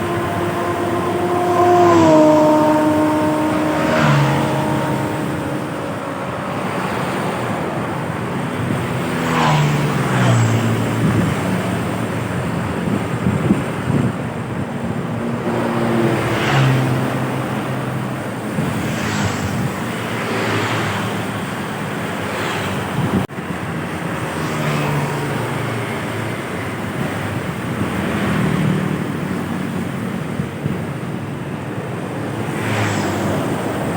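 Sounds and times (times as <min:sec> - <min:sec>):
tyres whooshing by: 0:00.0 - 0:23.3, 0:23.9 - 0:33.9
trucks and buses passing: 0:00.0 - 0:33.9.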